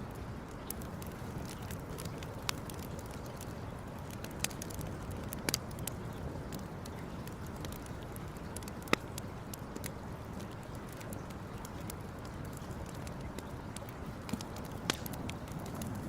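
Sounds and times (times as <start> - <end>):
campfire pops: 0.0 - 16.0
steady low fire rush: 14.0 - 16.0.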